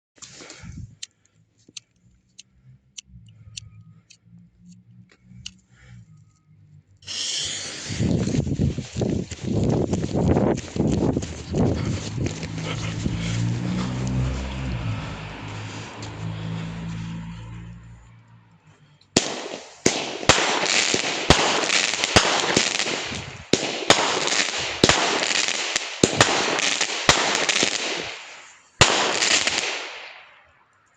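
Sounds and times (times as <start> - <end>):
firework fuse hiss: 7.0 - 10.8
firework tubes thumping: 19.1 - 29.8.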